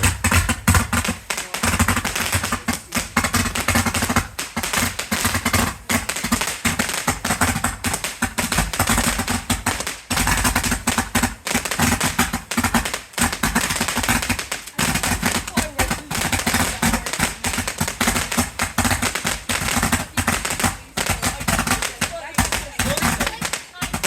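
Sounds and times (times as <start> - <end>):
fireworks crackling: 0.0 - 24.0.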